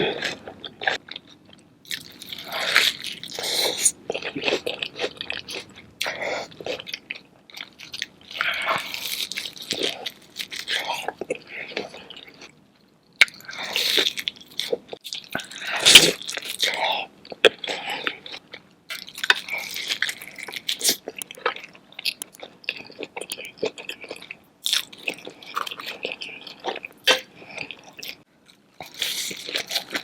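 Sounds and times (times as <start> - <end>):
wet chewing and biting: 18.2 - 28.2.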